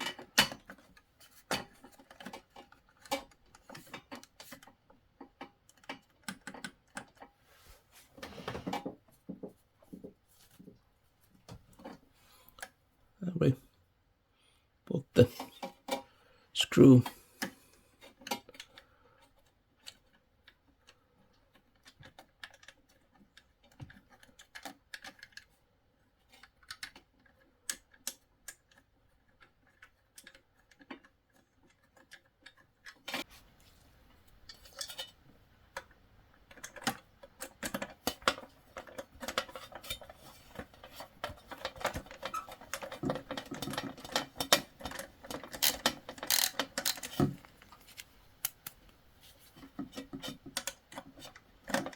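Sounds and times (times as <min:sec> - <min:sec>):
plastic parts being handled: 0:00.0 - 0:12.8, 0:17.0 - 0:51.9
screw being driven clicks: 0:45.4 - 0:47.5.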